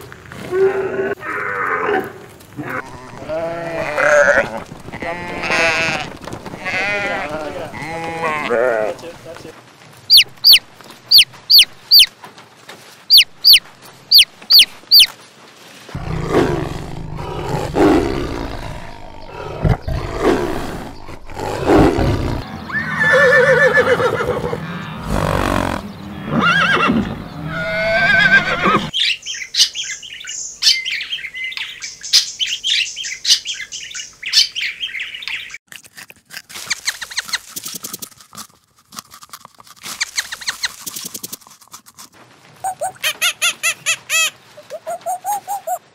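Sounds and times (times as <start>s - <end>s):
animal calls: 10.1s - 12.1s, 42.6s - 45.8s
baby chicks peeping: 10.1s - 12.1s, 13.1s - 15.1s
high bird twittering: 10.1s - 12.1s, 13.1s - 15.1s
rabbit chewing lettuce: 35.7s - 43.0s.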